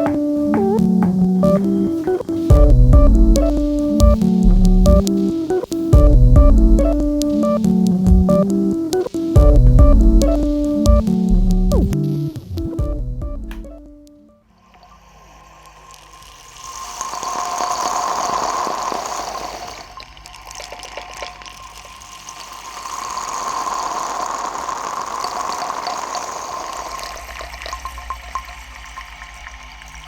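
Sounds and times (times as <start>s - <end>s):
crackling clicks: 6.8s - 12.8s
water gushing and bubbling: 14.6s - 30.0s.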